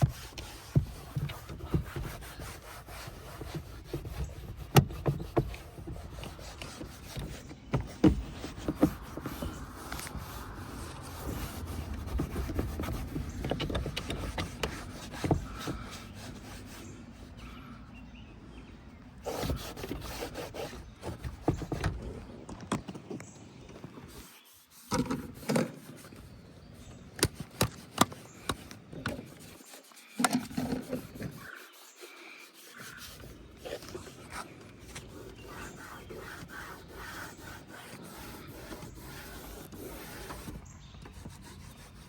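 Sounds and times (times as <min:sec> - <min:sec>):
hand scrubbing surfaces: 0:00.0 - 0:17.5, 0:19.2 - 0:21.9, 0:23.8 - 0:26.4, 0:27.2 - 0:42.0
trim knocks and clicks: 0:12.0 - 0:15.9.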